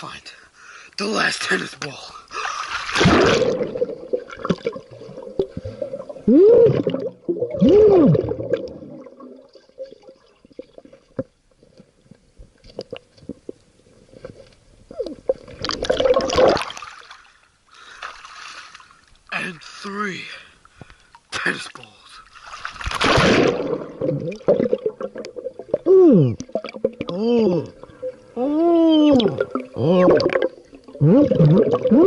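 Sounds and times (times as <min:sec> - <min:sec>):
water splashing: 0:02.3 - 0:11.2, 0:15.0 - 0:19.1, 0:21.4 - 0:32.0
underwater gurgling and bubbling: 0:02.9 - 0:11.2, 0:14.9 - 0:16.8, 0:23.2 - 0:32.0.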